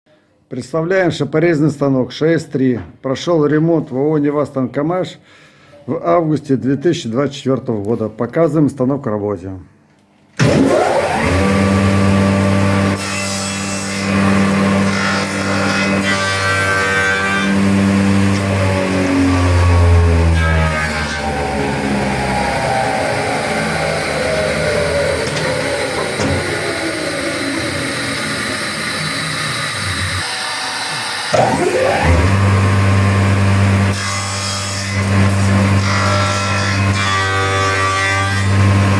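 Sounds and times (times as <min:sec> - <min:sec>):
cutters cutting wood: 0:10.4 - 0:38.9
machine motors humming: 0:18.0 - 0:34.0.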